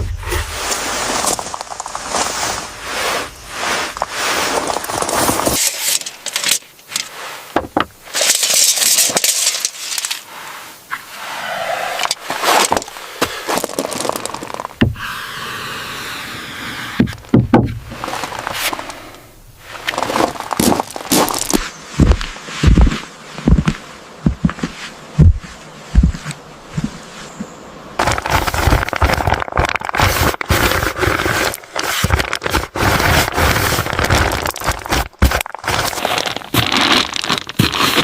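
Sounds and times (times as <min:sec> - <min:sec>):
scraping and rattling: 0:00.0 - 0:10.3, 0:11.9 - 0:15.0, 0:26.8 - 0:38.0
sharp clicks and knocks: 0:17.0 - 0:17.9.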